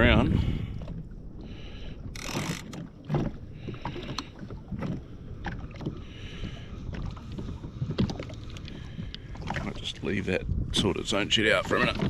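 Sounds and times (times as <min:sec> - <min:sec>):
water slapping against hull: 0:00.0 - 0:12.0
wind on microphone: 0:00.0 - 0:12.0.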